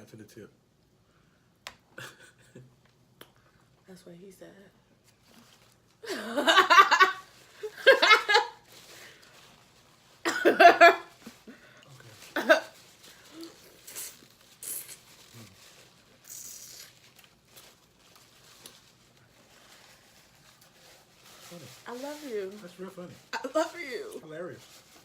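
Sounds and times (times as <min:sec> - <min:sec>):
person laughing: 0:02.0 - 0:02.6
faint clicks and rustles: 0:16.9 - 0:25.0.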